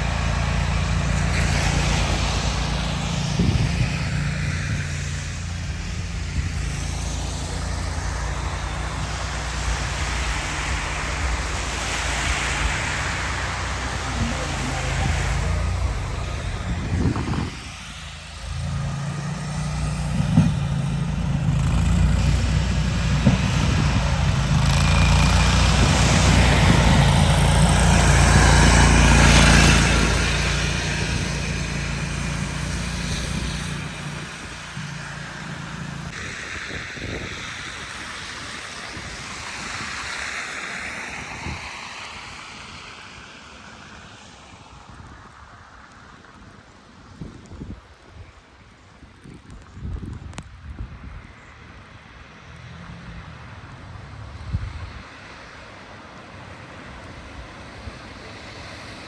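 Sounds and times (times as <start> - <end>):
heavy vehicle engine passing: 0.0 - 45.8
steady rush of noise: 0.0 - 50.6.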